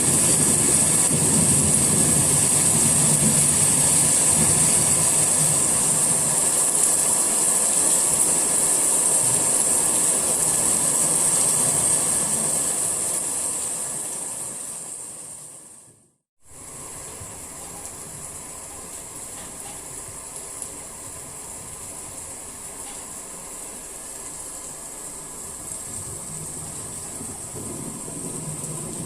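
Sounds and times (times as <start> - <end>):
rain falling: 0.0 - 29.0.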